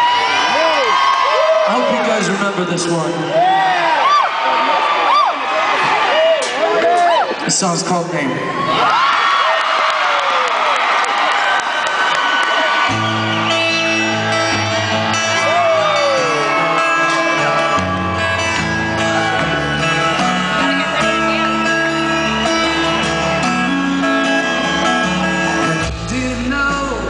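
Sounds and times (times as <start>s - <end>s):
crowd whooping and shouting: 0.0s - 7.5s, 8.2s - 26.8s
live rock band playing: 12.3s - 27.0s.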